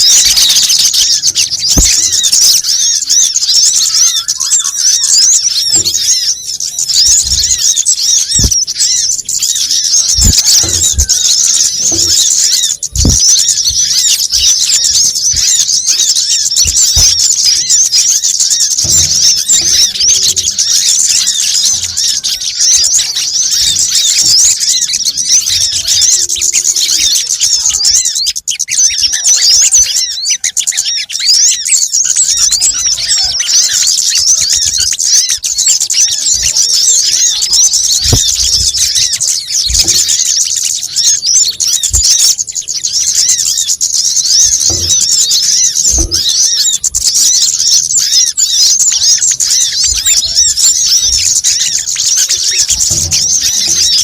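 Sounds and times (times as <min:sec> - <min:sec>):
small birds chirping: 0:00.0 - 0:54.0
low thumps: 0:01.0 - 0:02.3, 0:08.3 - 0:15.8, 0:16.5 - 0:20.7, 0:37.1 - 0:40.4.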